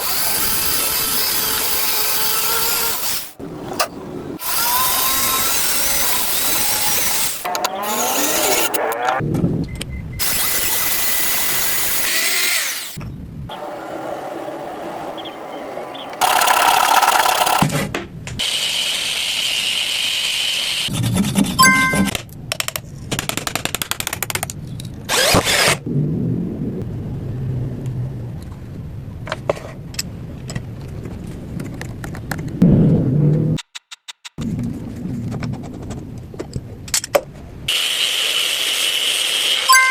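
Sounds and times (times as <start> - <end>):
power tool whir: 0.0 - 3.4, 4.4 - 8.8, 10.2 - 13.0, 16.2 - 17.7, 25.1 - 25.8
power drill driving screws into wood: 10.2 - 13.0, 16.2 - 17.7, 25.1 - 25.8
rapid even clicking: 16.2 - 17.6.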